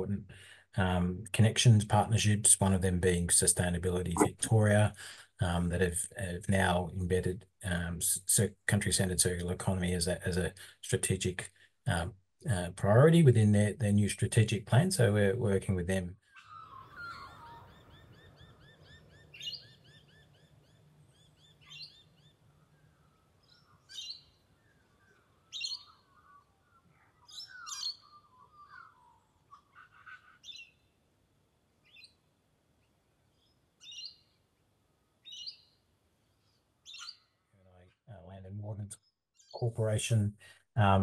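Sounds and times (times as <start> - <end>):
birds chirping: 4.1 - 4.6, 23.4 - 31.0
birds warbling: 25.0 - 30.8.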